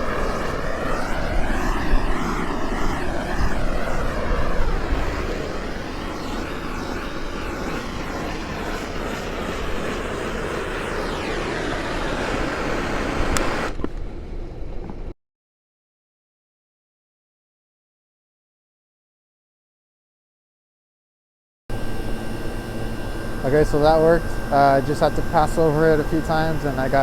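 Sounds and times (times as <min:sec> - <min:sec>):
gas torch flame rushing: 0:00.0 - 0:13.9.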